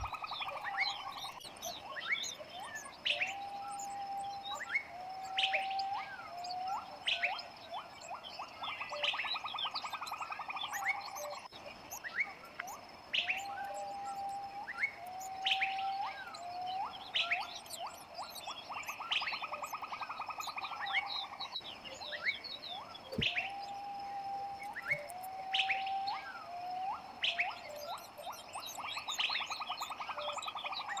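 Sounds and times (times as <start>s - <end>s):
buzzy rattling bird trill: 0.0s - 3.1s
quick rising bird chirps: 0.0s - 31.0s
whistled bird notes: 0.0s - 31.0s.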